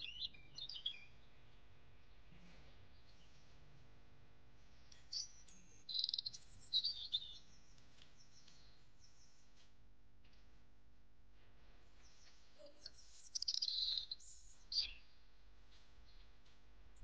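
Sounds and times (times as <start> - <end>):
bird chirping: 0.0 - 1.5, 4.9 - 9.5, 12.0 - 15.2.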